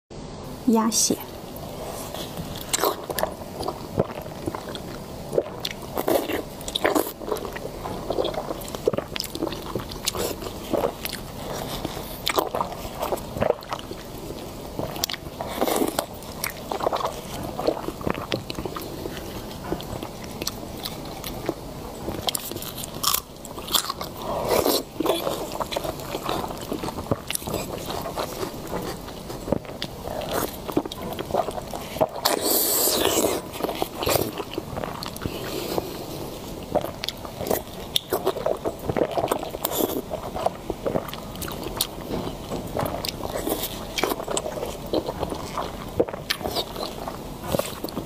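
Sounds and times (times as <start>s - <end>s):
biting and chewing soft food: 1.4s - 48.0s.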